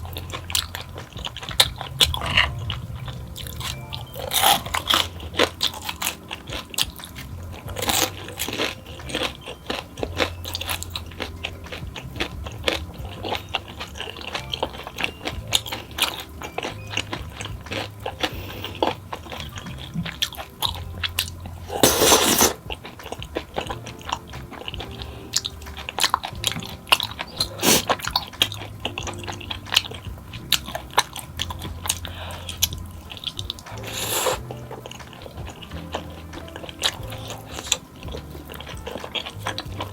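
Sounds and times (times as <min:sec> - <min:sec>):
chewing crunchy snacks: 0:00.0 - 0:39.9.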